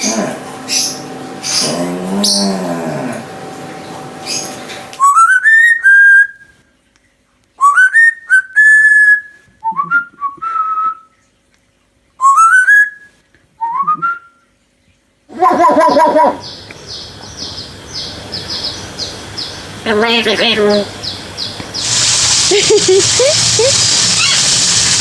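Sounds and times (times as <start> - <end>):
person whistling: 7.6 - 11.0.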